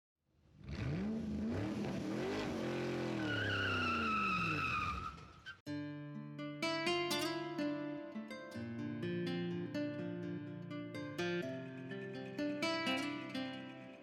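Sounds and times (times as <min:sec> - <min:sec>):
vehicle engine revving: 0:00.5 - 0:05.0
tire squeal: 0:00.7 - 0:05.6
acoustic guitar music: 0:05.7 - 0:14.0.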